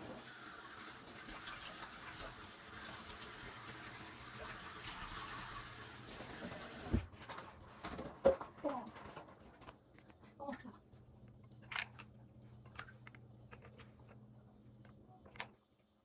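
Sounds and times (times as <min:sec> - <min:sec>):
water running from tap: 0:00.0 - 0:07.0.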